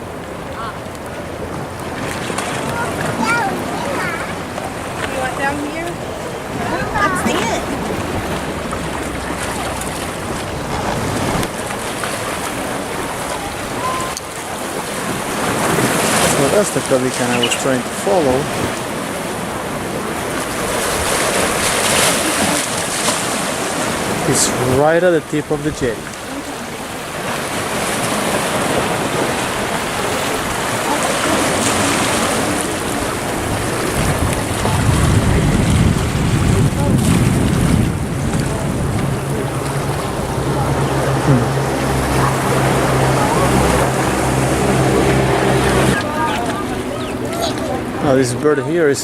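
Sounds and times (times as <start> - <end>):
wind buffeting microphone: 0.0 - 24.8, 25.5 - 49.0
surf washing: 0.0 - 49.0.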